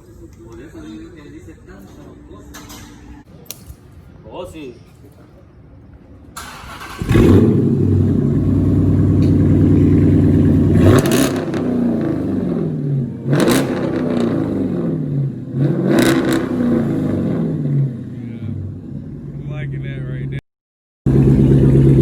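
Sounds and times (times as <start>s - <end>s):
car engine idling: 6.4s - 15.7s, 16.7s - 20.4s, 21.1s - 22.0s
car engine revving: 6.4s - 20.3s, 21.1s - 22.0s
car engine starting: 6.4s - 20.3s, 21.1s - 22.0s.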